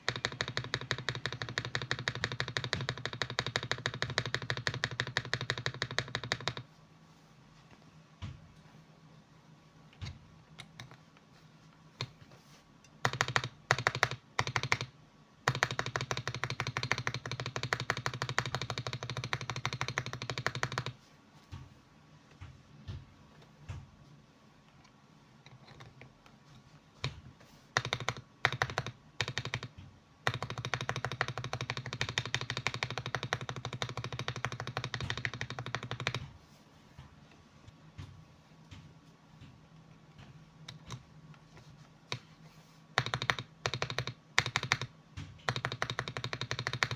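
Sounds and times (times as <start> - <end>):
mechanical keyboard typing: 0.0 - 6.7, 10.0 - 11.0, 12.0 - 12.2, 12.8 - 21.0, 25.4 - 26.3, 27.0 - 36.4, 40.2 - 41.1, 42.9 - 46.9.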